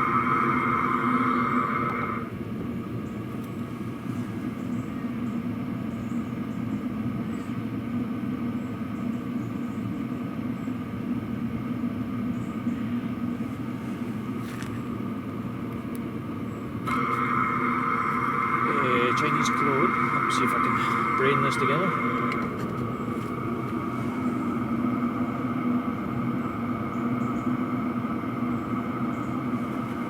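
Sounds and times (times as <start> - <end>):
heater exhaust running: 0.0 - 30.0
steady high whine: 0.0 - 30.0.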